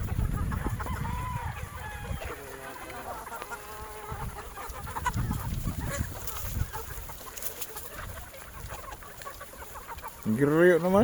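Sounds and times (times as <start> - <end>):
chickens clucking: 0.0 - 11.0
rooster crowing: 0.8 - 2.6.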